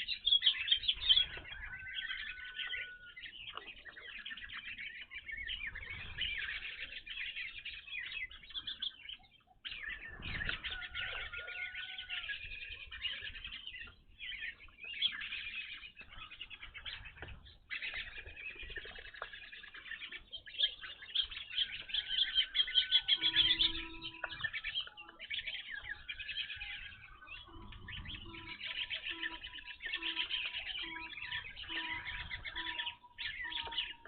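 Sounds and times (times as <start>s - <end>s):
birds chirping: 0.0s - 34.0s
low bird note: 27.1s - 34.0s.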